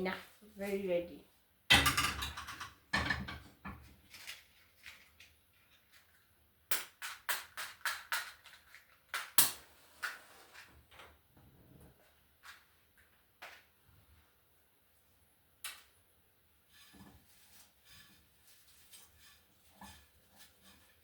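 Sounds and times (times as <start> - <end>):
kitchenware knocking and clacking: 1.7 - 3.8.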